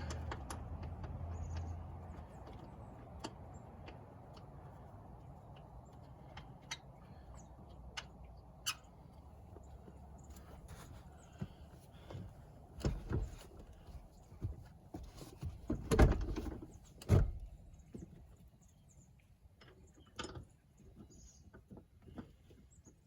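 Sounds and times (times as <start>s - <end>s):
seat belt buckle clicks and knocks: 15.4s - 17.6s.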